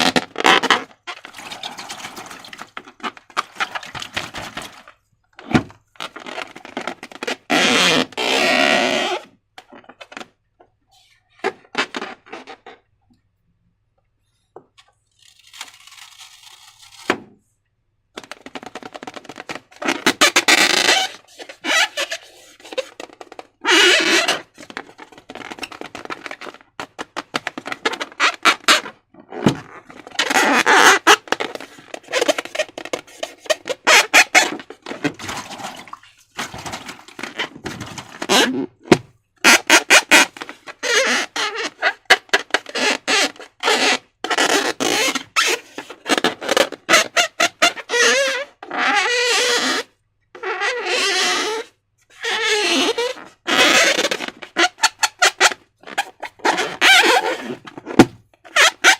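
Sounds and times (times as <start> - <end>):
balloon crackling and squeaks: 0.0 - 12.9, 15.1 - 17.2, 18.2 - 58.9
slime squelching: 34.6 - 38.2.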